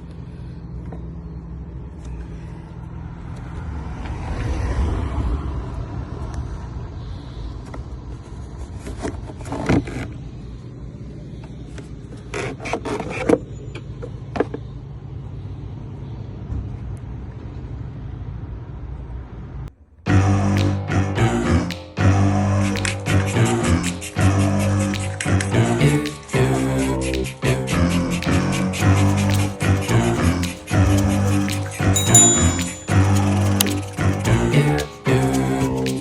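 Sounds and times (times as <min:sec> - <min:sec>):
music: 0:20.1 - 0:36.0.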